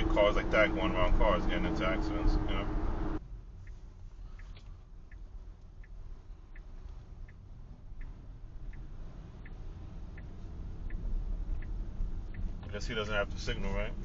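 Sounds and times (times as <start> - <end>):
low road rumble: 0.0 - 14.0
turn signal ticking: 2.9 - 14.0.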